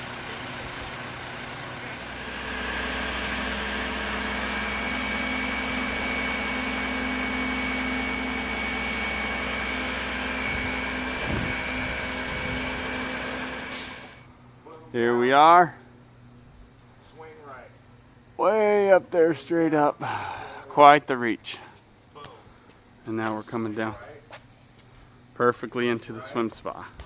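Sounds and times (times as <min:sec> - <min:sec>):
crane engine running: 0:00.0 - 0:14.6
steady whine: 0:00.0 - 0:27.0.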